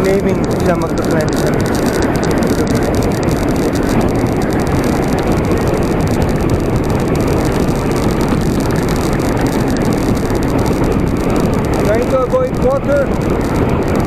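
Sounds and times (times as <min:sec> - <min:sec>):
bicycle road noise: 0:00.0 - 0:14.0
wind on microphone: 0:00.0 - 0:14.0.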